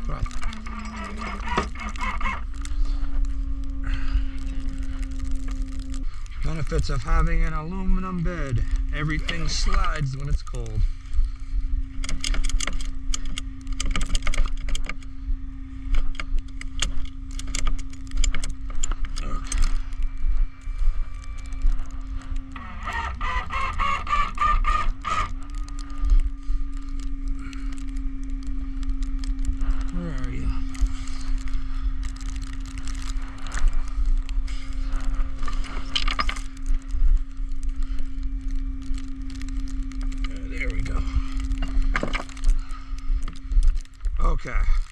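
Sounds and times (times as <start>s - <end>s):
metal chains clinking and rattling: 0.0s - 1.9s
truck engine running: 0.0s - 44.8s
steady hum: 0.0s - 44.9s.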